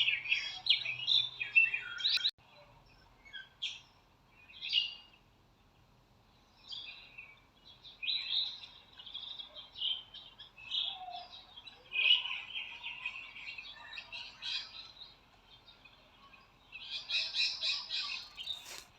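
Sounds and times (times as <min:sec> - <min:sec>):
birds chirping: 0:05.8 - 0:18.9.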